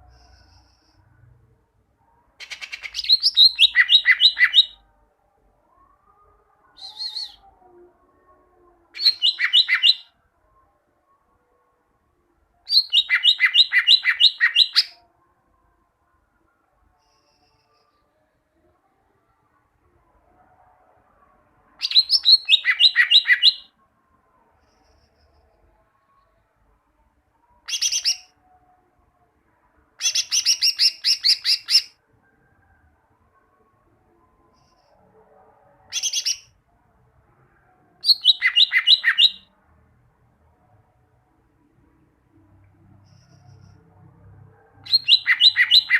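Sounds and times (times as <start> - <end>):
bird song with sharp notes: 2.4 - 4.9, 9.0 - 10.2, 12.6 - 15.0, 21.7 - 23.8, 27.4 - 28.8, 37.8 - 39.6, 44.8 - 45.9.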